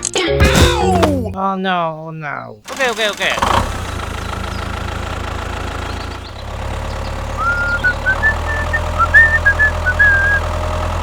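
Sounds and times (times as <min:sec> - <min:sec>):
engine idling: 0:02.7 - 0:11.0.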